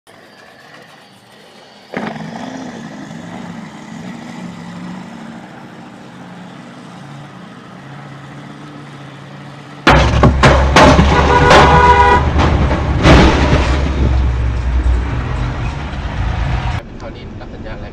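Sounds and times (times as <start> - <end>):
loud collision bangs: 9.8 - 16.8.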